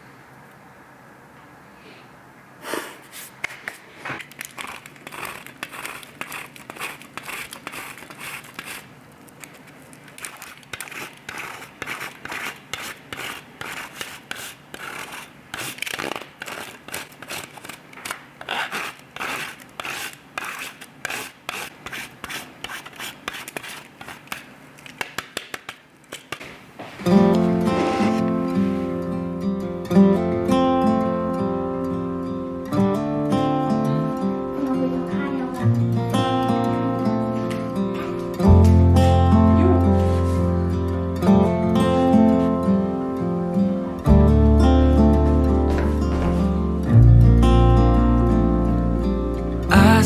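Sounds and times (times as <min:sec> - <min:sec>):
short scraping strokes: 0:27.1 - 0:29.1.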